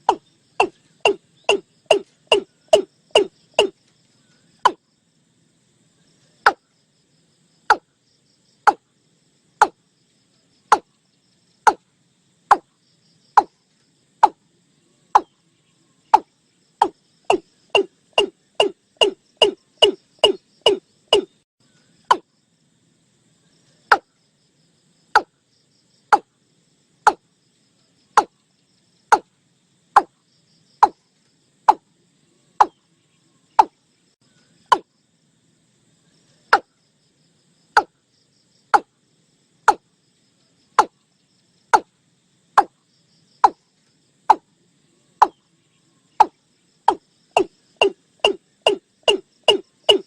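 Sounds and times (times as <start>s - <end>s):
bird calling sharp kok notes: 0.0s - 3.7s, 17.3s - 21.3s
faint insects: 0.0s - 50.0s.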